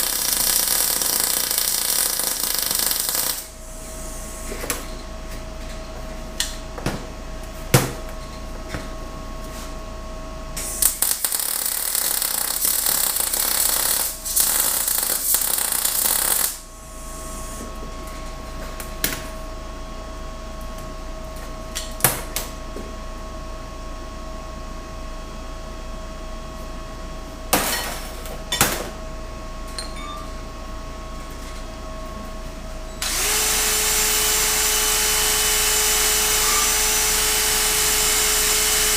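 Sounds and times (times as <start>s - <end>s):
power tool running: 0.0s - 3.5s, 33.0s - 38.9s.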